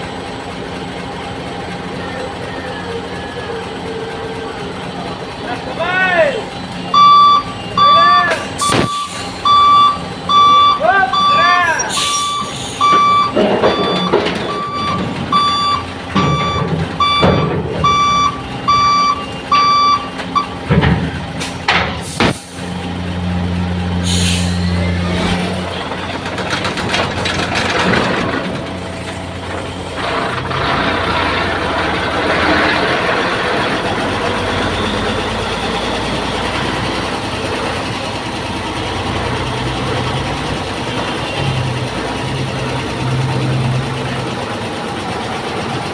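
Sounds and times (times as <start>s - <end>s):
heavy diesel engine running: 0.0s - 45.9s
electronic warning beeps: 6.7s - 20.6s.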